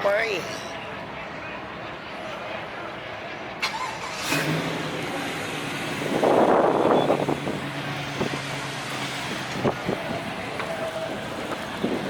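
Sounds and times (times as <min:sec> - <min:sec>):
engine and exhaust rush: 0:00.6 - 0:12.0
car engine running: 0:04.2 - 0:12.0.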